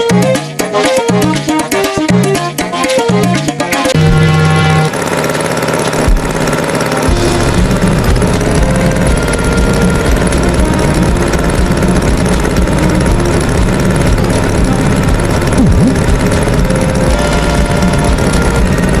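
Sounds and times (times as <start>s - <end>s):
tractor engine chugging: 4.0s - 19.0s.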